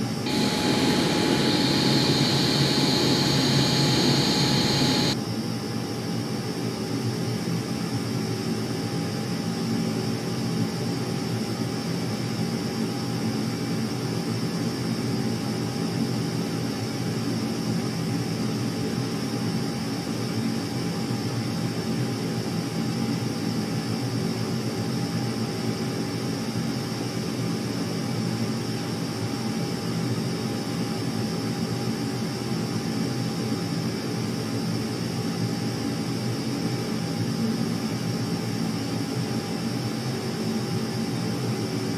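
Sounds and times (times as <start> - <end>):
aircraft engine drone: 0.3 - 5.2
thin high whine: 0.3 - 5.2.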